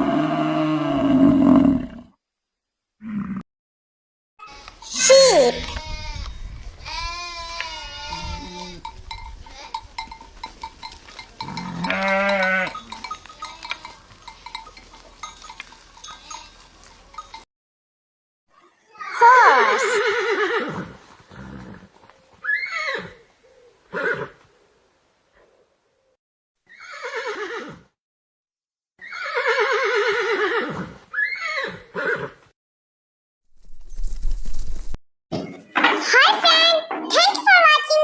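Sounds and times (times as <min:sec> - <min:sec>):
sheep bleating: 0:04.4 - 0:08.9, 0:11.4 - 0:14.6
horse whinnying: 0:07.3 - 0:08.9, 0:19.1 - 0:23.2, 0:23.9 - 0:24.4, 0:26.7 - 0:27.9, 0:29.0 - 0:32.4
livestock bells clinking: 0:08.2 - 0:17.5.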